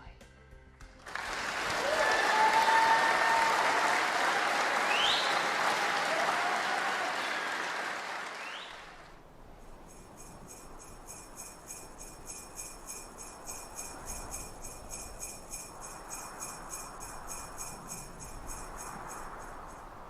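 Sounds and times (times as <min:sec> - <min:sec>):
crowd applauding: 0:01.0 - 0:09.2
people cheering: 0:01.1 - 0:09.0
jingle bells shaking: 0:09.6 - 0:19.9.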